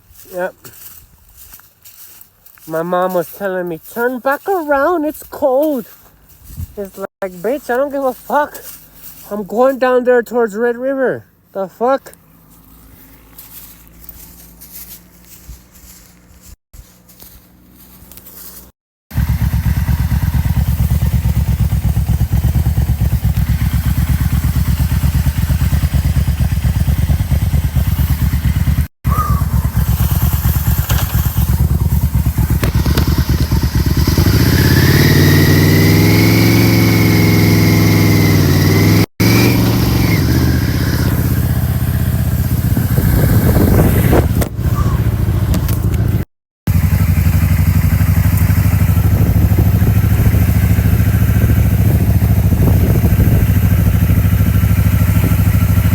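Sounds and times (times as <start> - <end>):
motorcycle engine running: 12.1 - 55.9.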